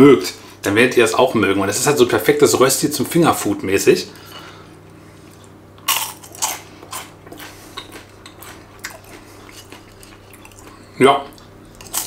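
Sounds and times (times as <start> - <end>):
crunching of crispy fried potato: 5.4 - 12.0.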